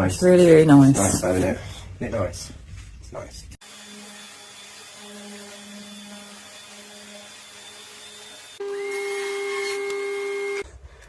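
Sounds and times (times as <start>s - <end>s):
power tool hissing: 3.6s - 10.6s.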